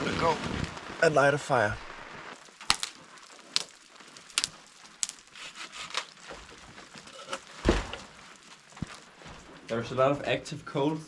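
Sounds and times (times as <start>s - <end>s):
crinkling: 0.0s - 10.0s
firewood clicks and knocks: 2.4s - 9.8s
heavy thump: 7.6s - 8.1s.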